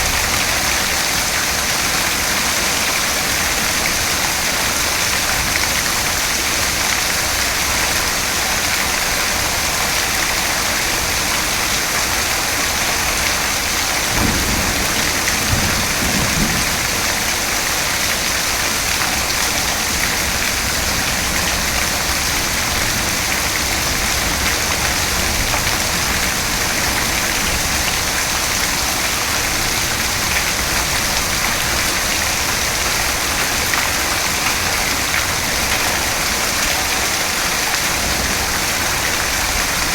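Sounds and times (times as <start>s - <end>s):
dense rainfall hissing: 0.0s - 39.9s
distant thunder rumble: 13.9s - 18.8s.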